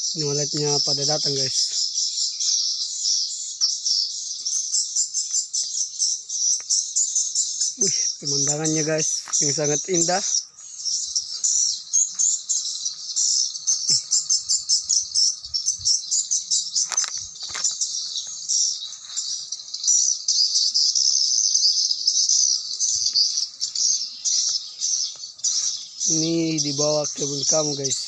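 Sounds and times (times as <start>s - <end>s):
swiftlets chirping rapidly: 5.8s - 28.0s.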